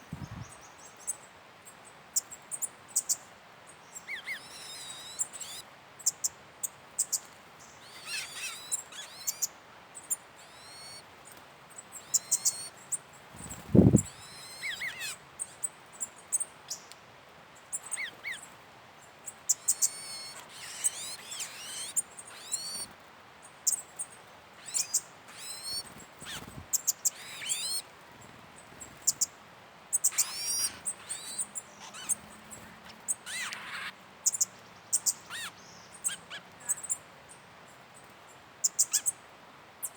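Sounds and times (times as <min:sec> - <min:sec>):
birds chirping: 0:07.1 - 0:11.0, 0:11.8 - 0:12.8, 0:19.3 - 0:22.9, 0:23.6 - 0:29.3, 0:29.9 - 0:37.4.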